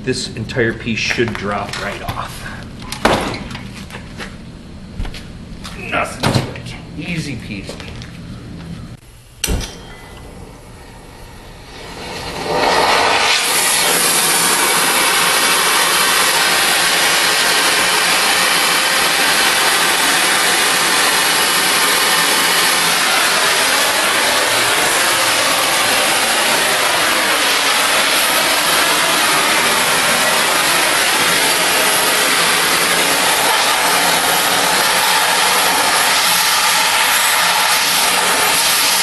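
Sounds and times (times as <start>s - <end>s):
cutting torch hissing: 10.9s - 39.0s.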